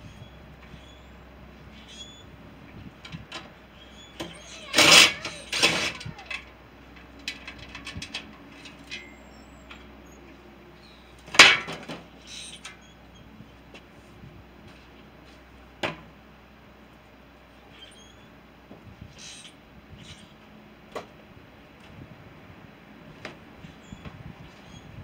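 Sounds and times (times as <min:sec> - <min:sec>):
loud rattling bursts: 0:04.3 - 0:08.9.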